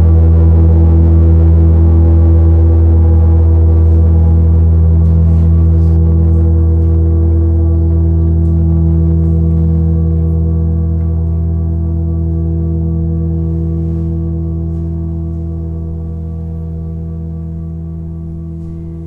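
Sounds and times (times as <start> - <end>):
low drone of steady tones: 0.0 - 19.0.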